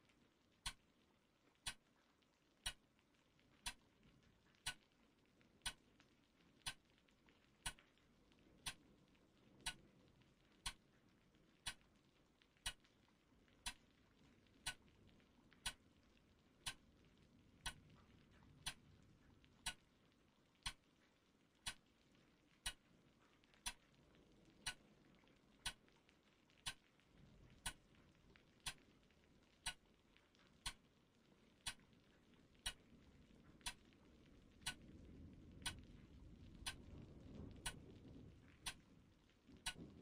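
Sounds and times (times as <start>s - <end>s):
faint low rumble: 0.0s - 40.0s
clock ticking: 0.6s - 0.8s, 1.6s - 1.9s, 2.6s - 2.8s, 3.6s - 3.8s, 4.6s - 4.9s, 5.6s - 5.8s, 6.6s - 6.9s, 7.6s - 7.8s, 8.6s - 8.8s, 9.6s - 9.8s, 10.6s - 10.8s, 11.6s - 11.9s, 12.6s - 12.9s, 13.6s - 14.9s, 15.6s - 15.8s, 16.6s - 16.8s, 17.6s - 18.9s, 19.6s - 20.0s, 20.6s - 20.9s, 21.6s - 21.9s, 22.6s - 22.9s, 23.6s - 23.9s, 24.6s - 24.8s, 25.6s - 25.8s, 26.6s - 27.0s, 27.6s - 27.9s, 28.6s - 28.9s, 29.6s - 29.9s, 30.6s - 30.9s, 31.6s - 32.0s, 32.6s - 32.9s, 33.6s - 34.0s, 34.6s - 36.0s, 36.6s - 38.8s, 39.6s - 40.0s.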